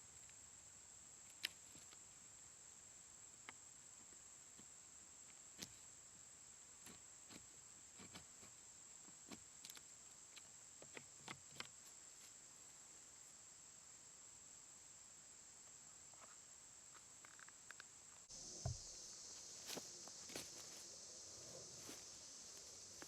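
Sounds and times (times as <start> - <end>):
insect chirring: 0.0 - 23.0
low thump: 18.6 - 19.0.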